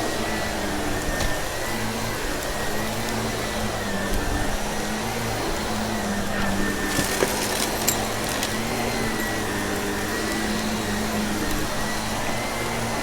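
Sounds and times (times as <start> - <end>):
vacuum cleaner running: 0.0 - 13.0
debris clicking in vacuum: 6.7 - 10.3.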